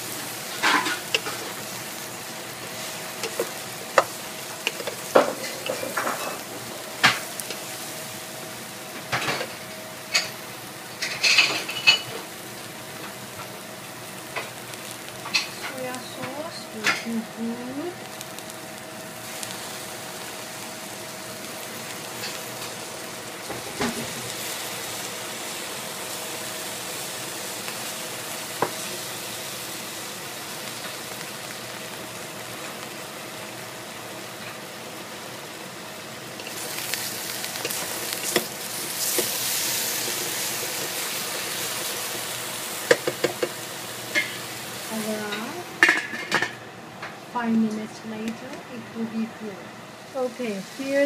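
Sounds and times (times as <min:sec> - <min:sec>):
eggplant sizzling in a pot: 0:00.0 - 0:51.0.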